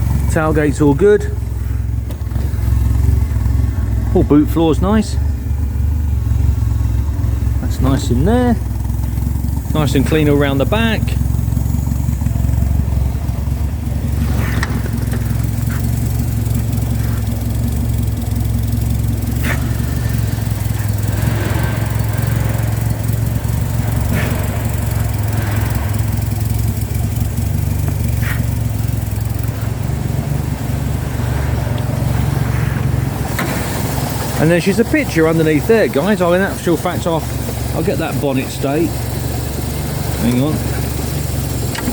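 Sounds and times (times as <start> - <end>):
car engine idling: 0.0 - 41.9
light engine knocks: 10.7 - 41.9.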